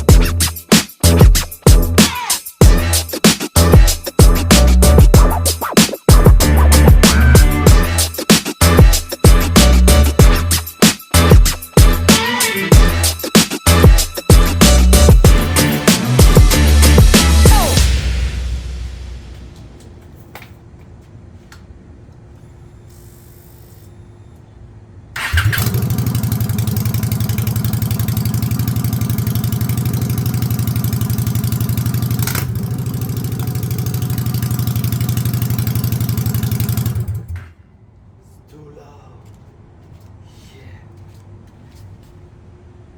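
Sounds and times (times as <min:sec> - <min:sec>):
motorcycle engine running: 0:25.2 - 0:37.4.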